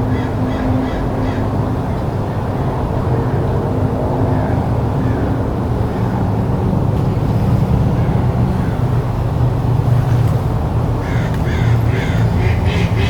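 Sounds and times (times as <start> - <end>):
low traffic rumble: 0.0 - 13.0
ducks quacking: 11.0 - 13.0.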